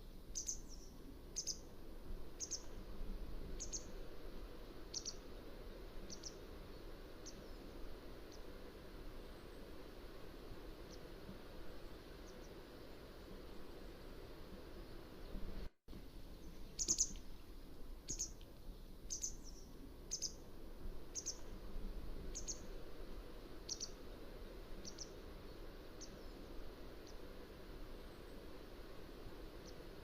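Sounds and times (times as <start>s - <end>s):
steady background hiss: 0.0s - 30.0s
short high bird calls: 16.7s - 17.2s.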